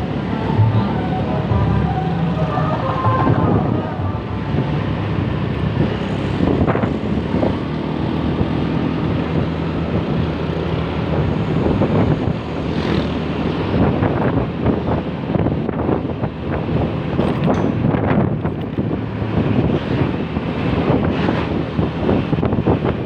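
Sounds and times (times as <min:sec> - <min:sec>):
passing traffic: 0:00.0 - 0:23.0
vehicle engine and road noise: 0:00.0 - 0:23.0
wind buffeting microphone: 0:03.0 - 0:23.0.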